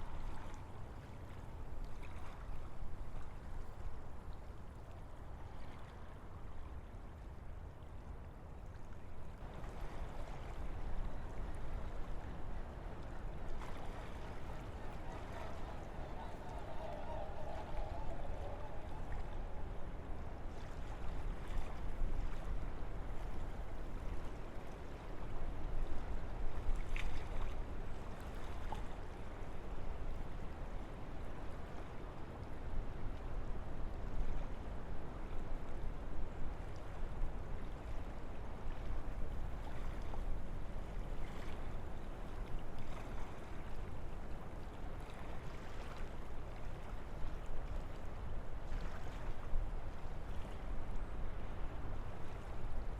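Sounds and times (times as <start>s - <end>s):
wind rushing through trees: 10.6s - 26.7s.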